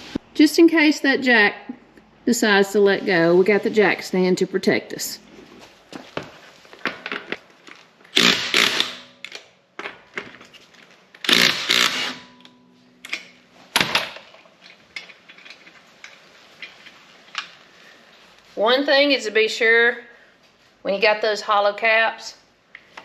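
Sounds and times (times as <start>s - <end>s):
impact wrench spinning: 8.1s - 9.4s, 11.2s - 14.0s.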